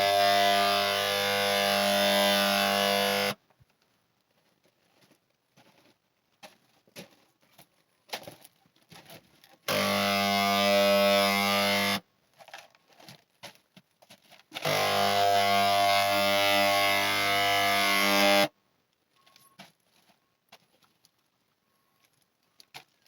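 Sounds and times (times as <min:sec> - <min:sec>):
electric paint sprayer buzzing: 0:00.0 - 0:03.4, 0:09.7 - 0:12.0, 0:14.6 - 0:18.5.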